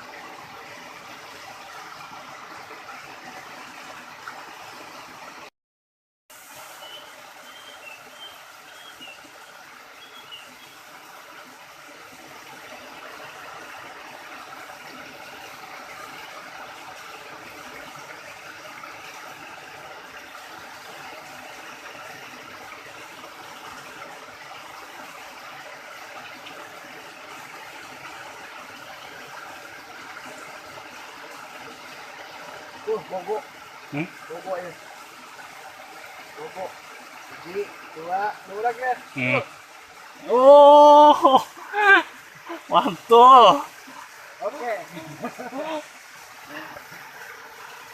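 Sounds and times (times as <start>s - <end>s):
river water flowing: 0.0s - 5.5s, 6.3s - 47.9s.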